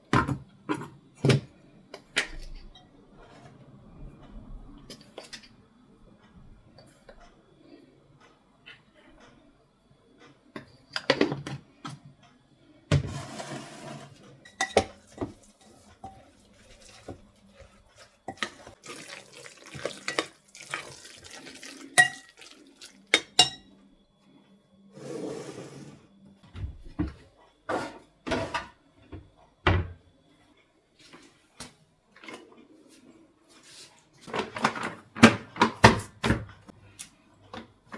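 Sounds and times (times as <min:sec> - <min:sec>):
dishes and cutlery clinking: 0:13.1 - 0:17.2, 0:23.1 - 0:23.7.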